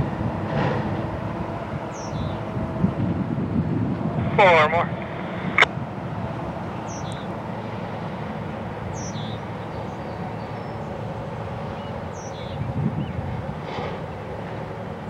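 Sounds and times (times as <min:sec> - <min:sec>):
freight train rumbling: 0:00.0 - 0:15.0
bird chirping: 0:01.9 - 0:02.4, 0:06.7 - 0:07.3, 0:08.9 - 0:11.0, 0:11.7 - 0:13.2.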